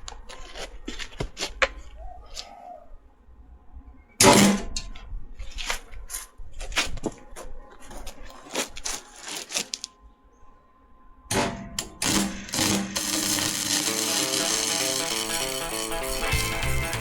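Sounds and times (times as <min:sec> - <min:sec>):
background music: 0:08.3 - 0:17.0.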